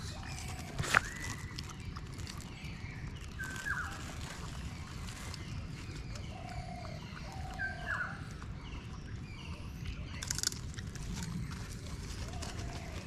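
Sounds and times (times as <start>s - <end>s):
plastic bag rustling: 0.0s - 6.2s, 10.9s - 13.0s
birds chirping and whistling: 0.0s - 13.0s.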